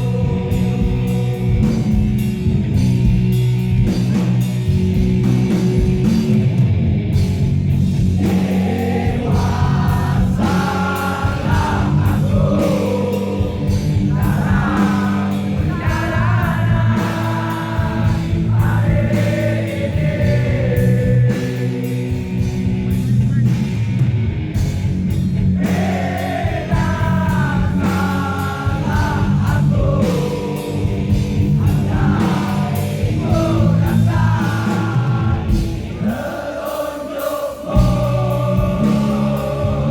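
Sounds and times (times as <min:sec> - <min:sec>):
voices singing: 0:00.0 - 0:02.2, 0:08.2 - 0:23.0, 0:25.5 - 0:39.9
live rock band: 0:00.0 - 0:39.9.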